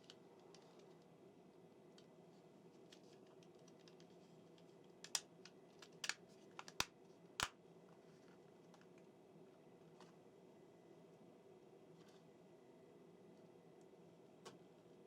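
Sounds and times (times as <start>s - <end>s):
low steady hum: 0.0s - 15.0s
plastic parts clicking: 5.8s - 7.5s.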